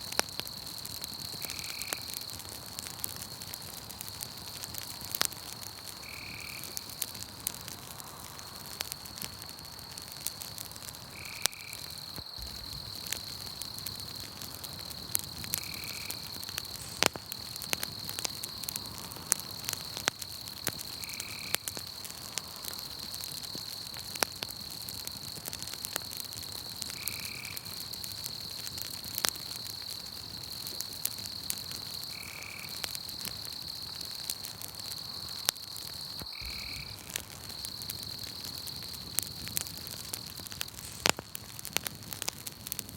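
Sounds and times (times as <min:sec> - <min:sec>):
campfire crackling and popping: 0:00.0 - 0:42.9
high-pitched insect trill: 0:14.8 - 0:23.9, 0:34.8 - 0:39.5.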